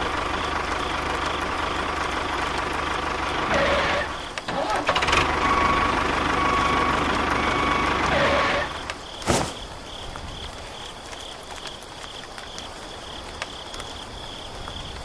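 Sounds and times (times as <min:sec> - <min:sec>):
crickets chirping: 0:04.1 - 0:04.6, 0:08.7 - 0:15.0.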